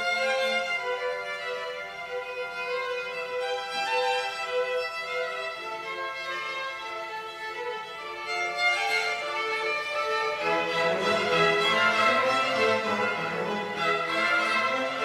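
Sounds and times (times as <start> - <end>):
lower accompanying notes: 0.0 - 15.0
violin melody: 0.0 - 15.0.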